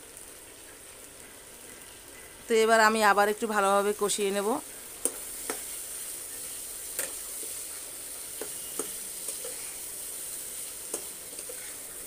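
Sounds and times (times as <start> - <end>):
potatoes sizzling in oil: 0.0 - 12.0
metal spatula scraping pan: 8.4 - 12.0.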